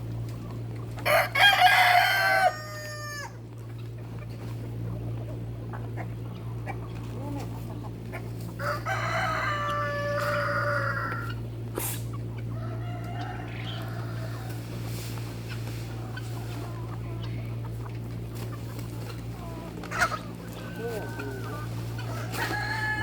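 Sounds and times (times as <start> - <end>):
steady low hum: 0.0 - 23.0
rooster crowing: 1.0 - 3.4, 8.6 - 11.4, 12.5 - 14.7, 20.8 - 23.0.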